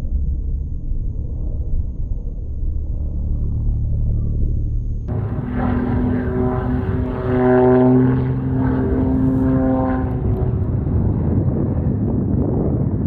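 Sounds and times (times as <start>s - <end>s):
propeller plane droning past: 5.1s - 13.0s.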